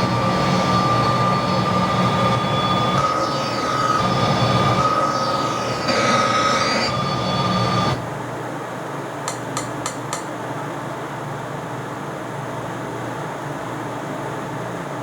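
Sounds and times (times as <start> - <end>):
steady tones: 0.0 - 8.0.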